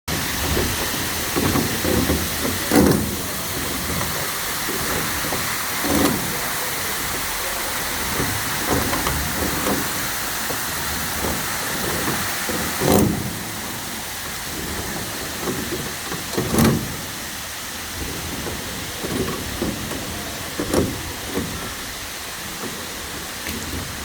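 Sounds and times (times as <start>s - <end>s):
low bumps: 0.1s - 24.0s
waterfall rushing: 0.1s - 24.0s.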